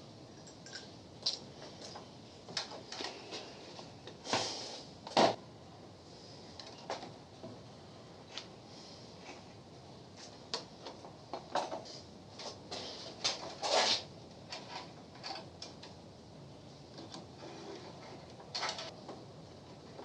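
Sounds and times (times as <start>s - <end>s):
tools clicking and clattering: 10.5s - 16.0s, 18.4s - 19.0s.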